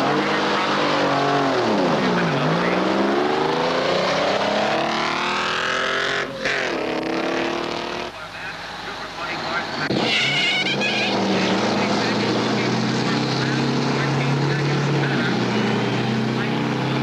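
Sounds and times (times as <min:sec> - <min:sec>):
truck engine accelerating: 0:00.0 - 0:17.0.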